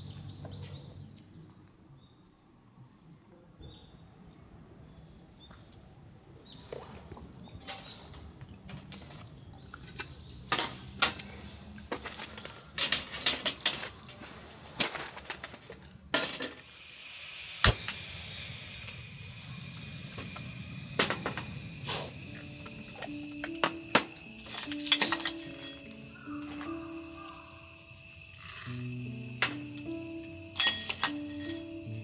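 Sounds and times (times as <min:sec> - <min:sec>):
camp gear clicking and knocking: 0:07.6 - 0:16.6
steady hiss: 0:16.2 - 0:32.0.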